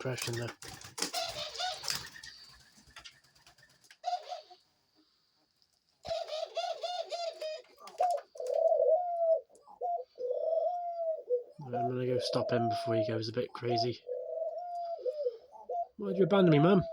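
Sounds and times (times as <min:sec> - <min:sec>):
dove cooing: 0:01.1 - 0:02.8, 0:04.0 - 0:04.6, 0:06.0 - 0:16.9.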